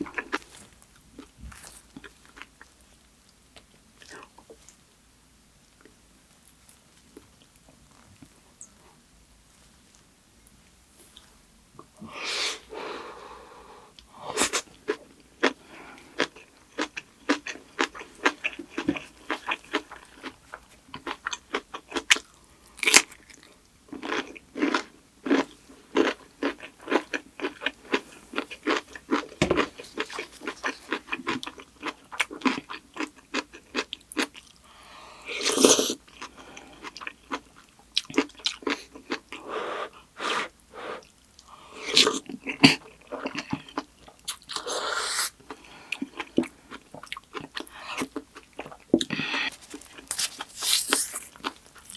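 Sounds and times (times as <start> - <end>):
mouth chewing and crunching: 0.0 - 4.8, 14.4 - 34.6, 35.4 - 40.1, 41.0 - 51.9.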